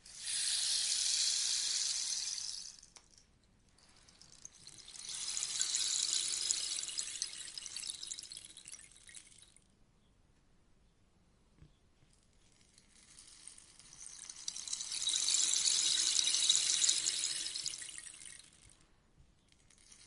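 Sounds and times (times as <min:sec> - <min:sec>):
rainstick trickling: 0:00.0 - 0:03.2, 0:03.8 - 0:09.6, 0:12.4 - 0:18.8.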